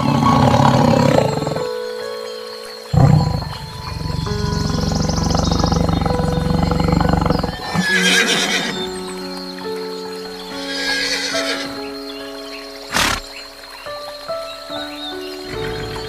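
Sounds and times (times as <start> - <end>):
soft background music: 0.0 - 16.0
low rumbling animal sound: 2.9 - 7.8
horse whinnying: 7.1 - 8.8, 10.6 - 11.8, 12.9 - 13.2.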